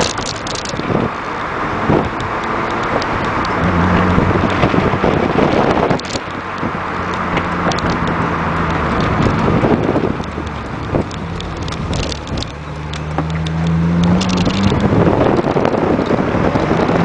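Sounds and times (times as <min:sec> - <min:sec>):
car engine running: 0:00.0 - 0:17.0
wind and road noise: 0:00.0 - 0:17.0.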